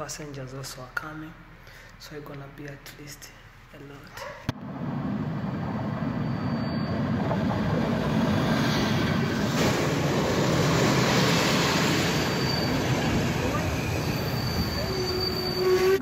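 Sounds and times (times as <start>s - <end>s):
train running on rails: 4.6s - 16.0s.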